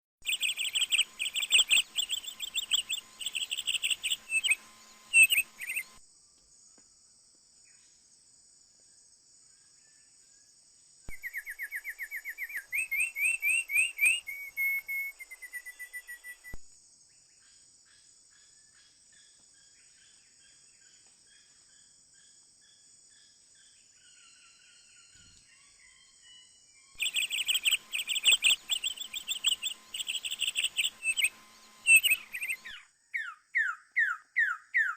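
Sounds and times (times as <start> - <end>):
birds trilling chirps: 0.2 - 6.0, 11.1 - 16.6, 17.3 - 34.9
high-pitched drone: 0.5 - 6.0.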